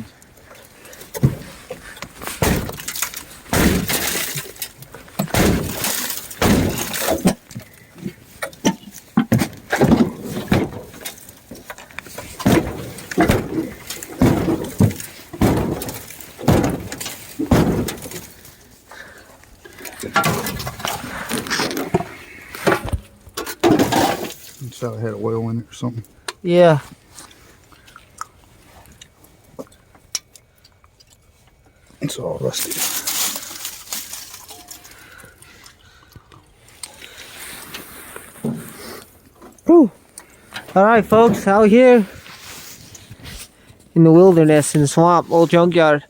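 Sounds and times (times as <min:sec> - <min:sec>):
brittle material crunching and cracking: 0:00.5 - 0:22.0, 0:32.2 - 0:37.2.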